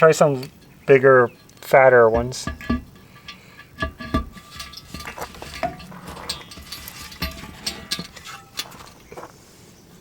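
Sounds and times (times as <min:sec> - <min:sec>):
metal washers clinking: 0:00.0 - 0:09.3.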